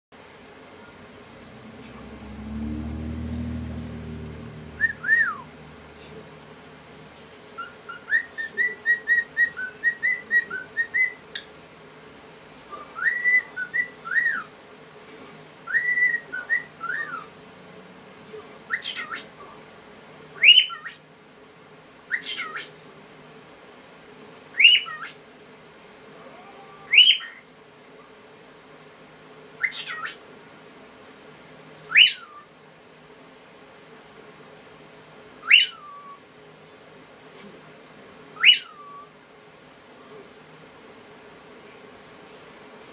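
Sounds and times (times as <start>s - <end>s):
cockatiel whistling: 4.8s - 5.5s, 7.6s - 11.2s, 12.7s - 14.5s, 15.7s - 17.3s, 20.4s - 21.0s, 22.1s - 22.7s, 24.6s - 25.1s, 29.6s - 30.2s, 31.9s - 32.5s, 35.4s - 36.2s, 38.4s - 39.1s.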